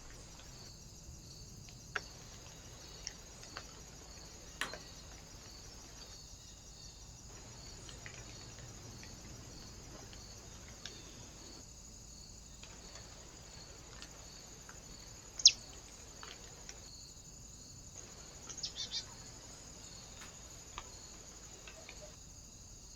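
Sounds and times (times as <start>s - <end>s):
small bird calling: 15.2s - 16.4s, 18.1s - 22.2s
bird chirps: 15.4s - 15.7s, 18.5s - 20.2s.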